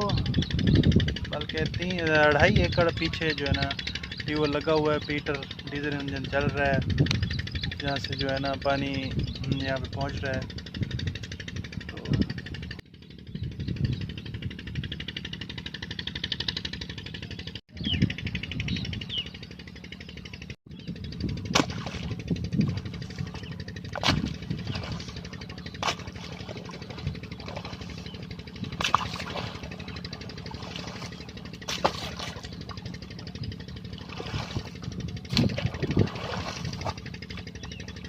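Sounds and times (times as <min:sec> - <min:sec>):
diesel engine pulsing hum: 0:00.0 - 0:38.0.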